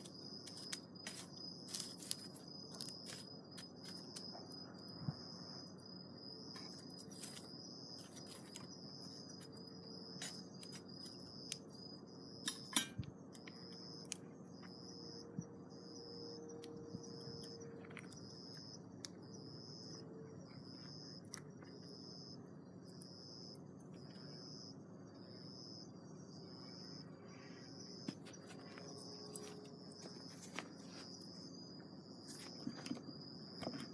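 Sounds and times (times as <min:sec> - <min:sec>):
campfire crackling and popping: 0:00.0 - 0:04.2
insect trilling: 0:00.0 - 0:20.0.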